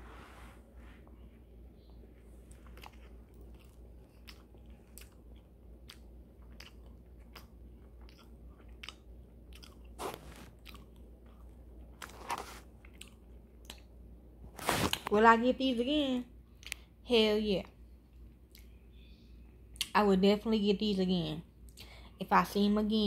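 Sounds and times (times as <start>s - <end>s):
person chewing close up: 2.4s - 13.9s.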